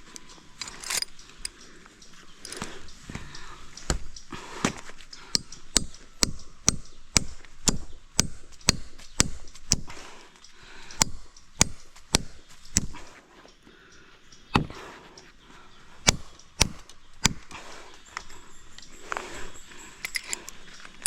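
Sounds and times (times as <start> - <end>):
blade chopping wood: 14.5 - 14.8.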